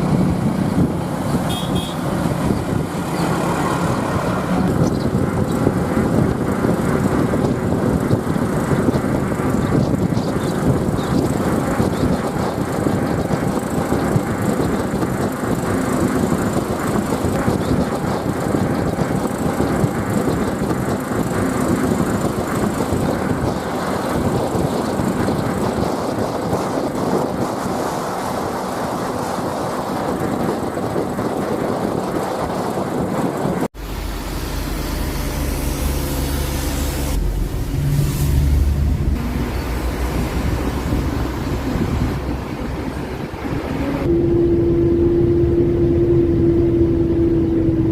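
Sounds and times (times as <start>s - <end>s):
lorry engine running: 0.0s - 47.9s
rattling and road noise: 0.0s - 47.9s.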